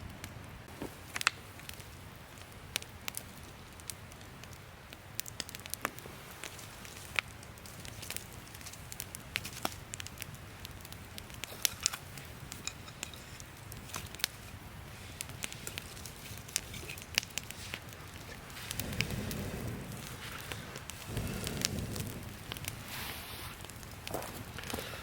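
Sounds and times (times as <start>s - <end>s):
campfire crackling and popping: 0.0s - 25.0s
low rumble: 18.4s - 24.2s.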